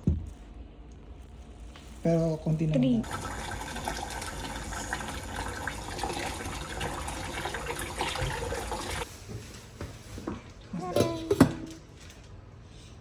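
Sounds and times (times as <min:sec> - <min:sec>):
water rushing: 0:03.0 - 0:09.0
water splashing: 0:03.0 - 0:09.0.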